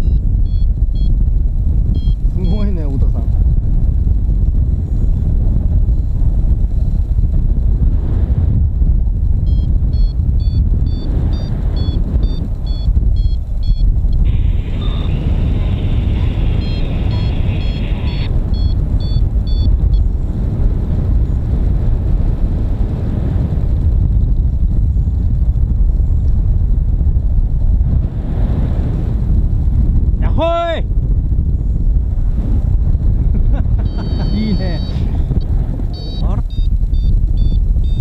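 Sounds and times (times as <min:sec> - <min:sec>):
variometer beeping: 0:00.0 - 0:03.1, 0:09.4 - 0:20.3, 0:33.8 - 0:38.0
wind buffeting microphone: 0:00.0 - 0:38.0
steady high tone: 0:13.6 - 0:19.7, 0:33.8 - 0:35.1, 0:35.9 - 0:36.7.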